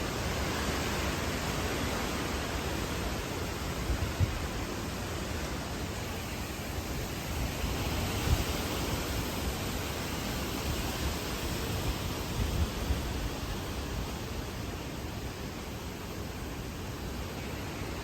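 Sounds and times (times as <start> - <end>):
hurricane wind and rain: 0.0 - 18.0
wind gusts buffeting microphone: 2.9 - 4.8, 6.8 - 14.6.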